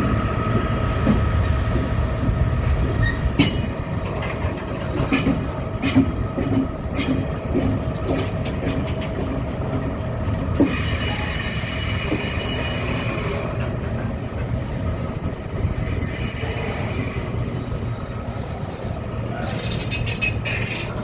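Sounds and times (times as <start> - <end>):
train wheels rumbling on rail: 0.0 - 21.0
metallic wheel squealing: 2.9 - 3.8, 10.6 - 18.0, 19.3 - 21.0.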